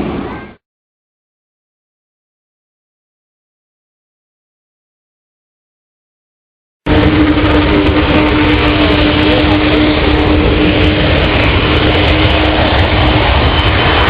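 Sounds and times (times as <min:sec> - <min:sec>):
aircraft engine running: 0:06.9 - 0:14.0.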